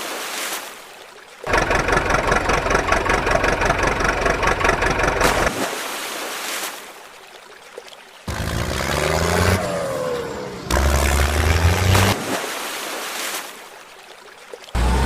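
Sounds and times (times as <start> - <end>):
motor engine running loudly: 1.5 - 5.5, 8.3 - 12.2.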